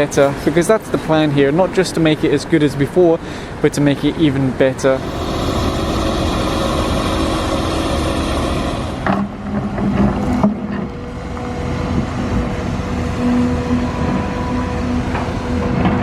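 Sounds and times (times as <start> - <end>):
motor running: 5.0 - 9.3.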